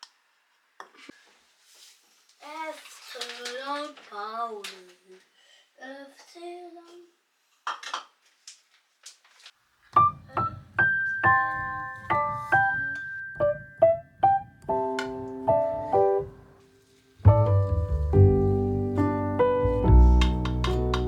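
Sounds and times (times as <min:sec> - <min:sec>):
piano melody: 0:10.0 - 0:21.0
low bass line: 0:17.3 - 0:21.0.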